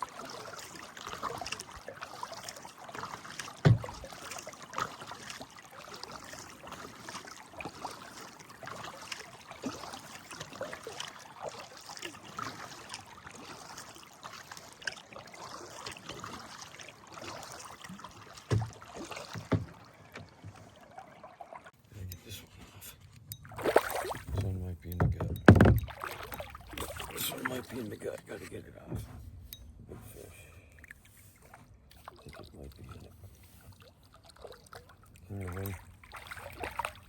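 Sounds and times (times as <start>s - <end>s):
small water splashes: 0.0s - 21.8s, 23.4s - 28.8s, 30.6s - 37.0s
river water lapping around kayak: 0.0s - 37.0s
dull knocks: 3.6s - 4.0s, 18.5s - 20.6s, 25.0s - 26.0s.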